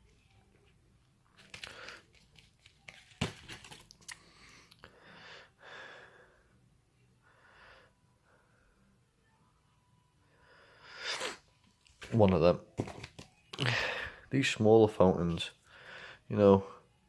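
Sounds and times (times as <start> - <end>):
packaging rustling and crinkling: 1.3 - 4.2.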